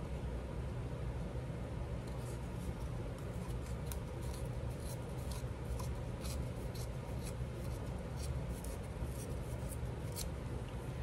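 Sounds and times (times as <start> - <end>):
paper rasping strokes: 2.1 - 10.3.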